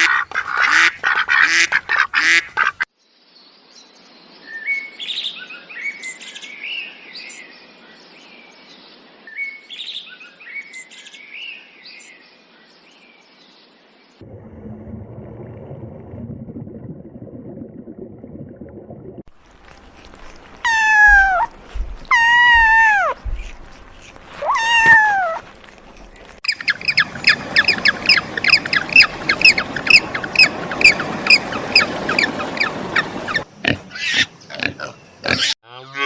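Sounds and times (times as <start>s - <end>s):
animal calls: 20.6s - 25.5s, 26.5s - 36.0s.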